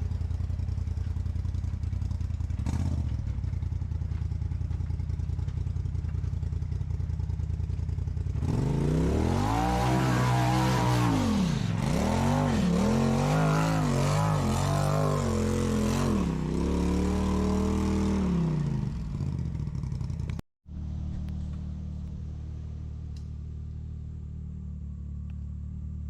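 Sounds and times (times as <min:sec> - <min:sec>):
engine revving: 0:08.3 - 0:26.0.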